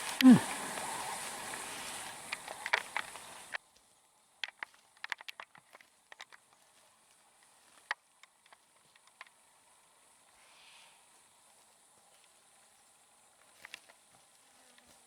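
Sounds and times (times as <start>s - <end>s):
footsteps on dry ground: 0.0s - 3.9s
steady background hiss: 0.0s - 15.0s.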